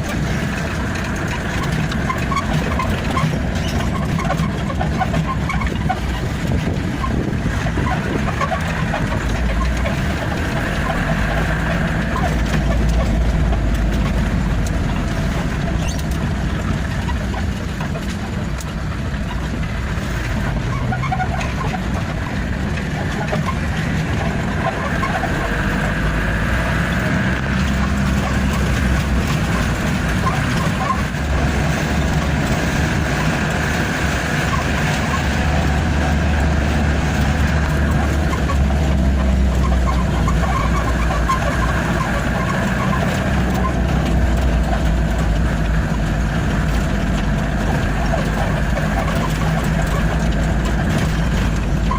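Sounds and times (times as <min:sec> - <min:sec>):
truck engine running: 0:00.0 - 0:51.9.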